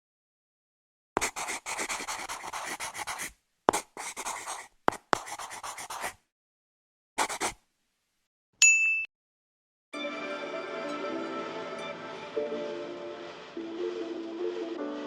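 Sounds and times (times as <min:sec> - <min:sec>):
drawing tool scratching paper: 0:01.2 - 0:06.2, 0:07.2 - 0:07.6.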